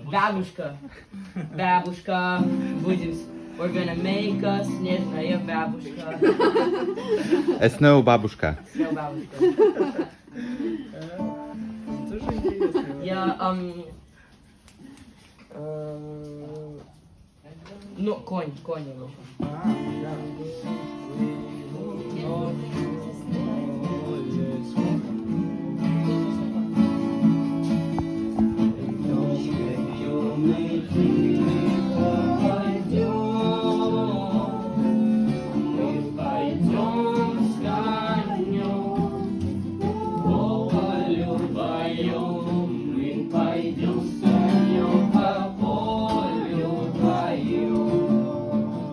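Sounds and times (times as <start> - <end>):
acoustic guitar strumming: 2.1 - 8.0, 11.2 - 13.3, 19.5 - 48.9
person singing: 19.4 - 27.0, 28.4 - 48.9.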